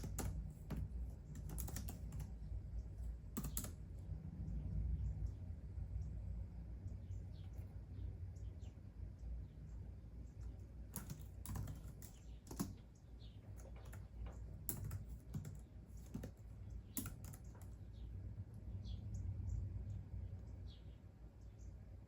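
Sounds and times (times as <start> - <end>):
typing on a computer keyboard: 0.0 - 3.9, 10.4 - 17.8.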